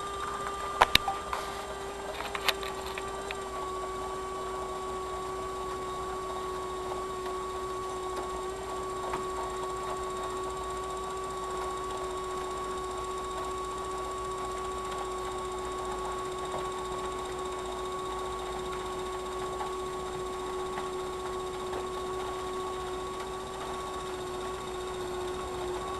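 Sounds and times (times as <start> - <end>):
model train motor whine: 0.0 - 25.9.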